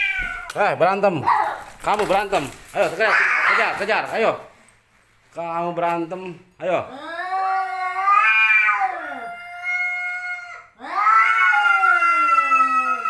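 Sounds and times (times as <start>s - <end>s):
cat yowling: 0.0s - 0.6s, 3.1s - 3.8s, 6.9s - 13.0s.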